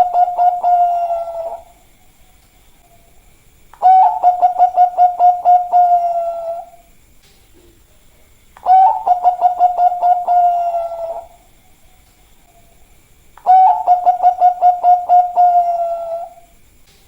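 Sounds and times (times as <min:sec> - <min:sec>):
dove cooing: 0:00.0 - 0:01.9, 0:03.8 - 0:06.9, 0:08.6 - 0:11.6, 0:13.4 - 0:16.5.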